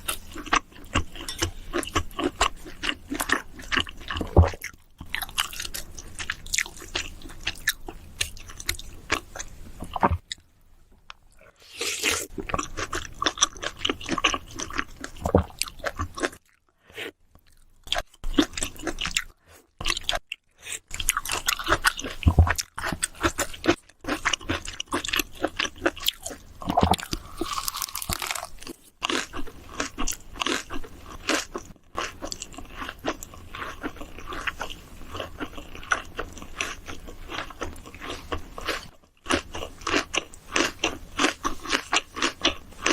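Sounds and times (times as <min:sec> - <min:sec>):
person chewing and biting food: 0:00.0 - 0:10.4, 0:20.9 - 0:42.9.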